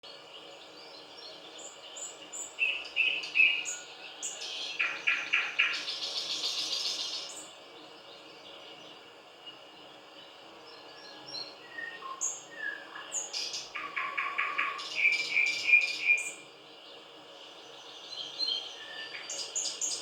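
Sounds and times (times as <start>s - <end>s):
nightingale singing: 1.6s - 7.5s, 10.7s - 16.4s.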